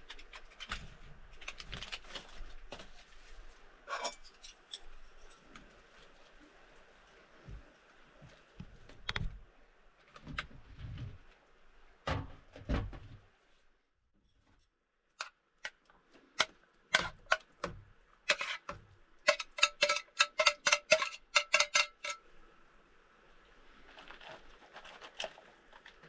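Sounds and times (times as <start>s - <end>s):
utensil clinking on pot: 18.3s - 22.2s.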